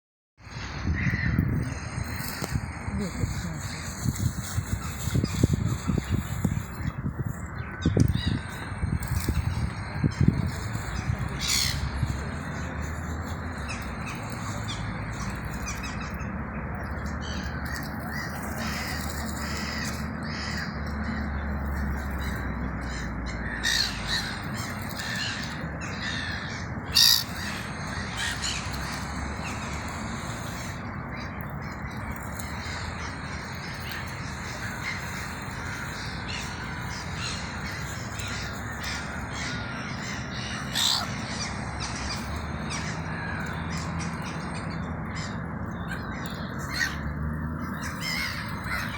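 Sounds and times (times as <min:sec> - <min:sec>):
crows cawing: 0:17.7 - 0:21.4, 0:22.2 - 0:29.6, 0:32.6 - 0:44.4, 0:47.7 - 0:48.9.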